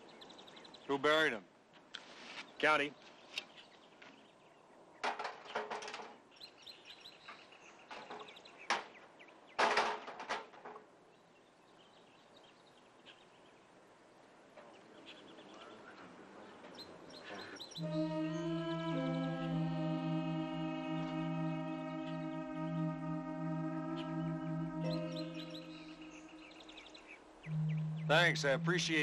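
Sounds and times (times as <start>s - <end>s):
birds chirping: 0.0s - 1.3s, 14.6s - 29.0s
sustained music chord: 17.8s - 26.8s, 27.5s - 29.0s.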